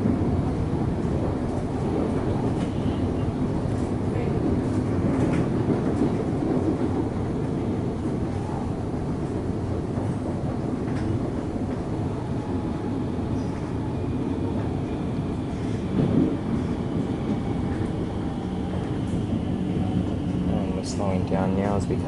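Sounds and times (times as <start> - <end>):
train wheels rumbling on rail: 0.0 - 22.0
train knock: 15.6 - 18.0.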